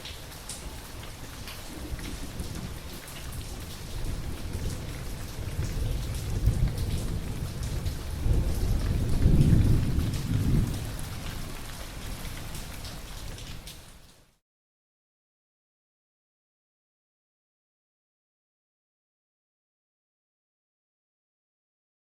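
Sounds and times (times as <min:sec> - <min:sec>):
rain pattering: 0:00.0 - 0:14.4
thunder rolling: 0:01.7 - 0:11.6.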